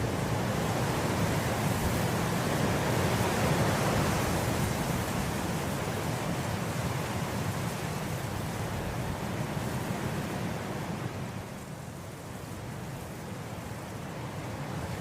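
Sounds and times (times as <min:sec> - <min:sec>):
wind blowing through grass: 0:00.0 - 0:15.0.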